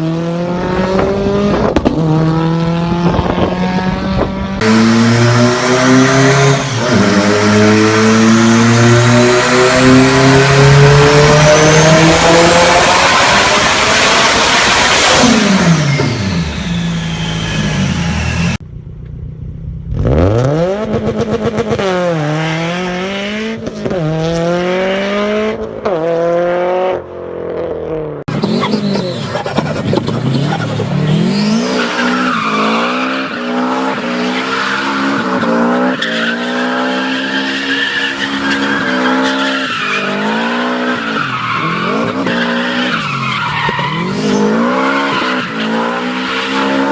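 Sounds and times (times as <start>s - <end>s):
car engine accelerating: 0.0s - 27.0s, 27.9s - 46.9s
turbo whine: 13.2s - 19.2s.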